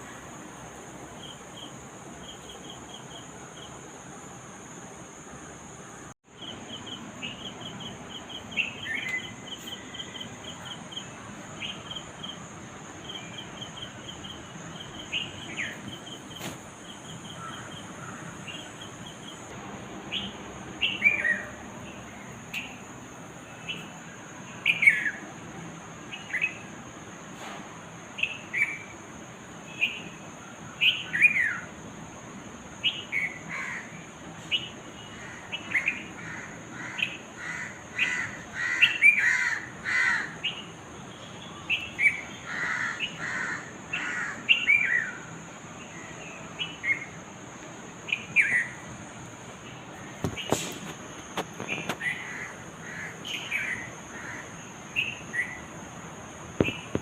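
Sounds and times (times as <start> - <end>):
steady high-pitched whine: 0.0 - 57.0
birds chirping: 5.9 - 25.2, 56.6 - 57.0
downward-sweeping bird calls: 6.0 - 12.3, 20.1 - 22.8, 32.8 - 47.2, 48.0 - 49.0, 51.6 - 55.7.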